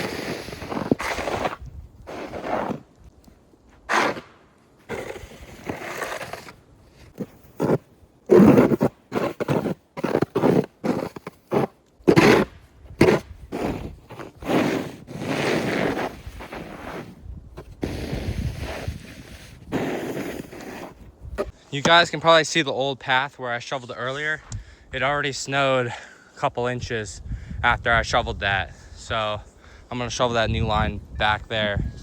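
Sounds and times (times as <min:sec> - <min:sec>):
shovel scraping through snow: 0:00.0 - 0:02.9, 0:03.9 - 0:21.5.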